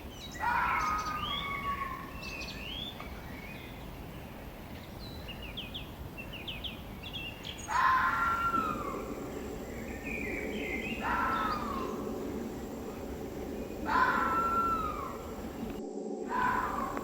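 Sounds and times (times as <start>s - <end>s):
steady background hiss: 0.0s - 17.0s
bird call falling in pitch: 0.3s - 2.5s, 7.6s - 17.0s.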